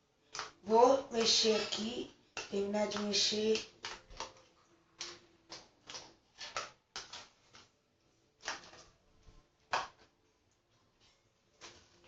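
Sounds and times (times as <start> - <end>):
slime scraping and knocking in pot: 0.4 - 7.7.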